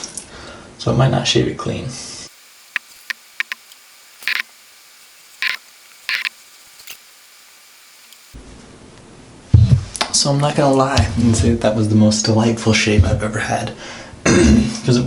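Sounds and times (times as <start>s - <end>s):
razor scraping stubble: 2.3s - 8.4s
sharp small clicks: 2.3s - 8.4s.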